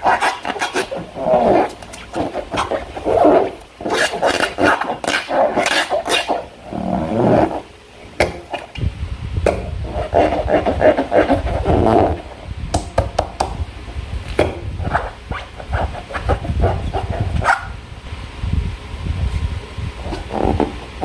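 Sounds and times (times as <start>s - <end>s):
rubbery balloon squeaks: 0.0s - 8.7s, 9.7s - 12.5s, 14.4s - 17.8s, 20.0s - 21.0s.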